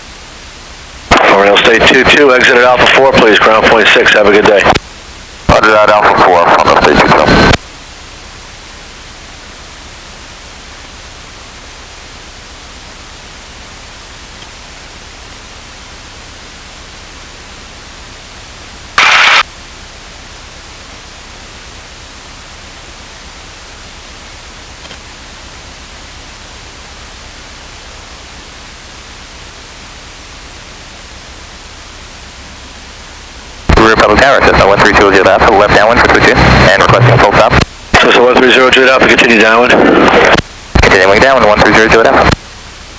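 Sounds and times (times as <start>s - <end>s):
radio intercom hiss: 1.0s - 4.8s, 5.4s - 7.8s, 18.9s - 19.5s, 32.3s - 42.6s
radio static burst: 1.1s - 4.8s, 5.5s - 7.6s, 19.0s - 19.5s, 33.6s - 42.4s.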